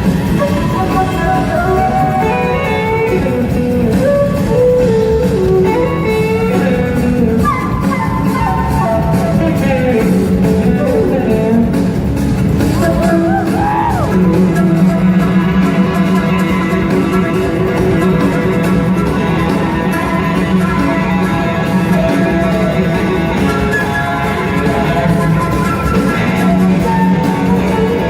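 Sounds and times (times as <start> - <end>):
electric guitar: 0.0 - 28.0
rock band playing: 0.0 - 28.0.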